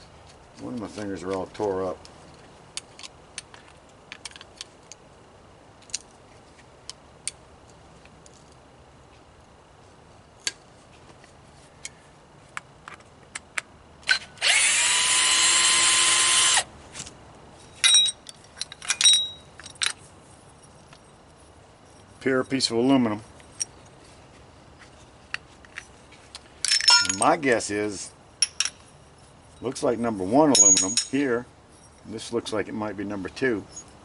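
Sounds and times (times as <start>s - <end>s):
power drill whine: 14.4s - 16.7s
metallic clinks of loose parts: 17.6s - 22.7s, 23.3s - 24.0s, 25.0s - 27.6s, 28.4s - 32.1s, 33.6s - 34.0s
tools tapping and clicking: 17.8s - 20.0s, 25.3s - 27.3s, 28.4s - 28.8s, 30.5s - 31.2s.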